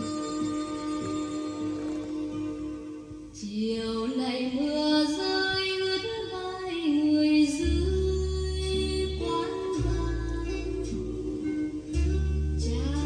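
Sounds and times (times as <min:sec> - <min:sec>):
low bass notes: 0:07.6 - 0:13.0.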